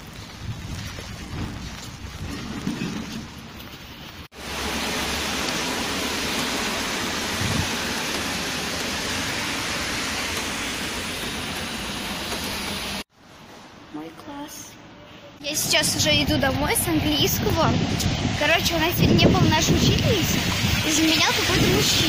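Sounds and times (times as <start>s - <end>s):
rough outdoor noise: 0.0s - 22.0s
steady hiss of rain: 4.3s - 13.0s, 15.6s - 22.0s.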